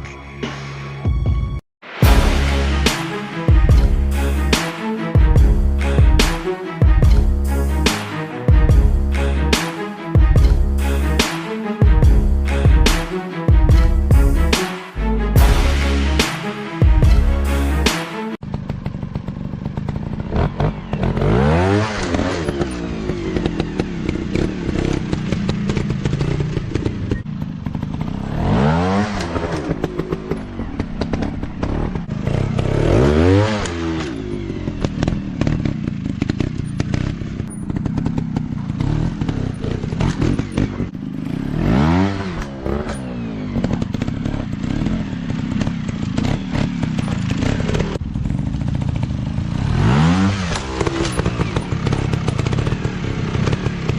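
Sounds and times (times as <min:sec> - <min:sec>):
dirt bike engine revving: 0:17.0 - 0:53.9.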